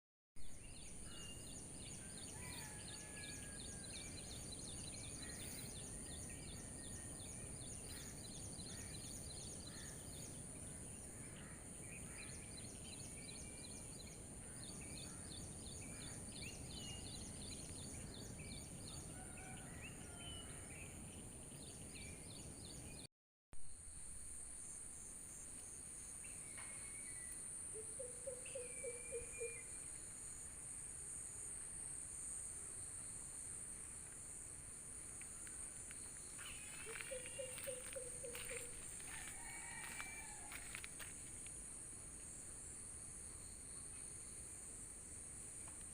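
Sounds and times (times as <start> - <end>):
rapid insect chirping: 23.8 - 45.9
high insect drone: 28.6 - 45.9.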